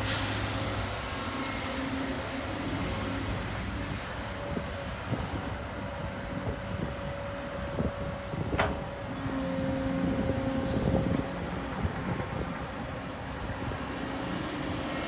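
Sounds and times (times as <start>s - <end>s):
heavy diesel machinery running: 0.0s - 15.0s
metallic clanks and knocks: 8.6s - 8.9s.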